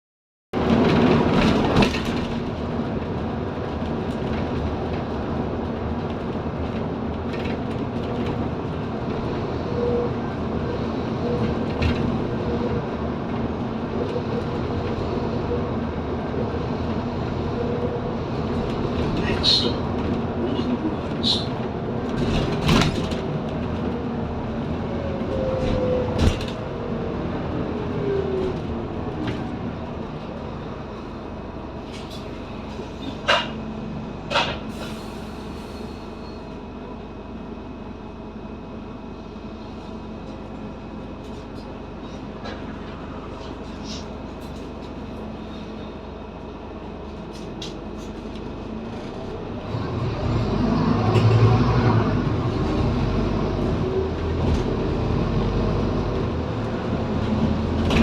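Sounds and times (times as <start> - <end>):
clunks and rattles: 0.6 - 15.0, 18.3 - 26.9, 31.9 - 33.6, 34.2 - 35.0, 53.4 - 55.1, 56.9 - 58.0
diesel engine revving: 49.4 - 58.0.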